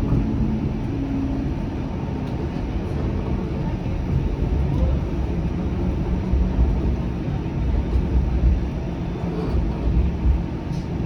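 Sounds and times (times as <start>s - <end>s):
tram wheels rumbling on rail: 0.0s - 11.0s.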